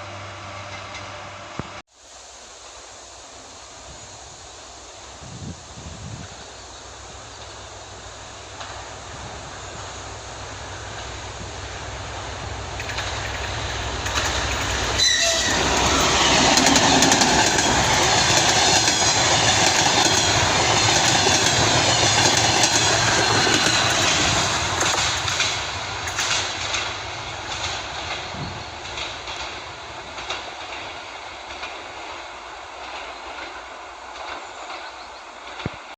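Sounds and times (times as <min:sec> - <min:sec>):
train wheels clattering over rails: 0:12.8 - 0:35.9.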